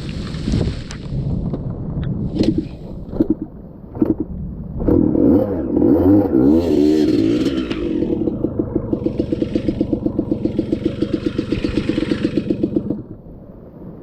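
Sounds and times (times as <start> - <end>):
dirt bike engine revving: 4.8 - 13.2.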